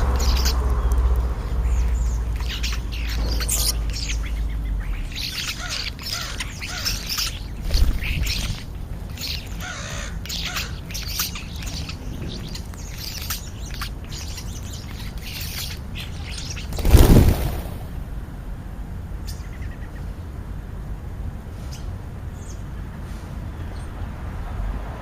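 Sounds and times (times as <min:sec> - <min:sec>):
starlings chattering: 0:00.0 - 0:18.2.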